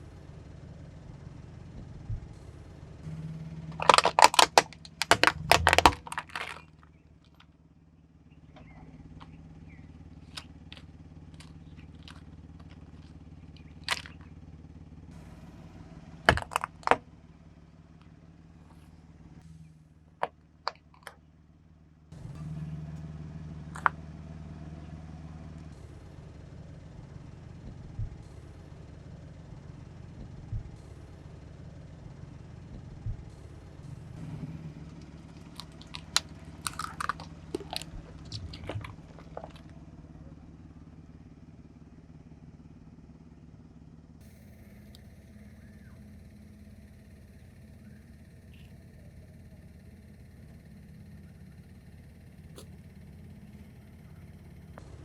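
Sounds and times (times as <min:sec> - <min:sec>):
low engine hum: 0:00.0 - 0:55.0
tyre crushing brittle objects: 0:03.6 - 0:07.4, 0:10.2 - 0:14.4, 0:16.2 - 0:17.1, 0:35.0 - 0:39.8.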